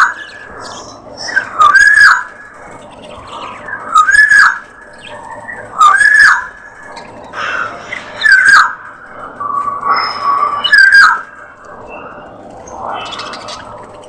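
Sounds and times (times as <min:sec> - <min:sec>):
bird whistled call: 0:08.0 - 0:08.8, 0:09.4 - 0:11.4.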